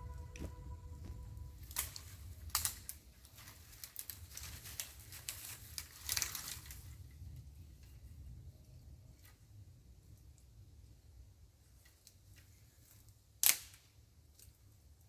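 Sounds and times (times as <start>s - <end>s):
low rumble: 0.0s - 2.7s
dry material crackling and rustling: 0.0s - 7.0s.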